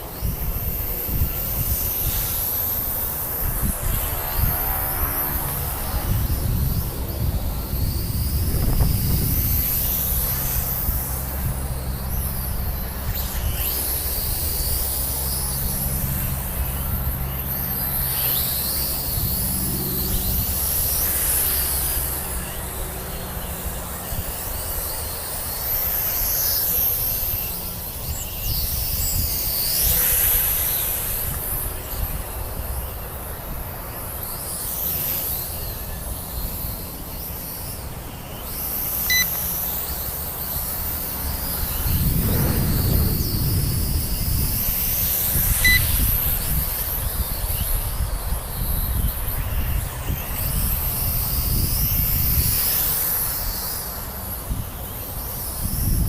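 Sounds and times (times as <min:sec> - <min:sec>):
wind buffeting microphone: 0:00.0 - 0:25.6, 0:40.5 - 0:53.5, 0:54.4 - 0:56.0
quadcopter motors whining: 0:00.0 - 0:56.0.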